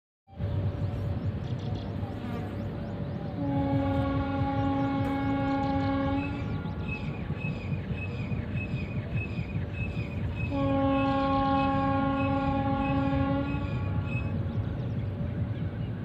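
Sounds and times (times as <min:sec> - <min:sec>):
horn blast: 0:03.4 - 0:06.7, 0:10.5 - 0:14.1.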